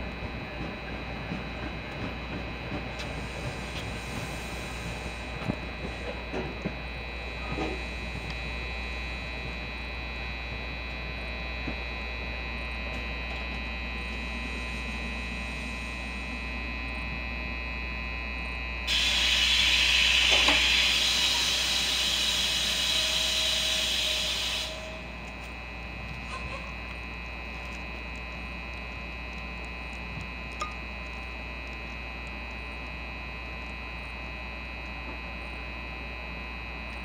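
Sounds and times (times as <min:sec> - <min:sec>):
train equipment humming and whining: 0:00.0 - 0:37.0
loud hiss of air: 0:18.9 - 0:25.0.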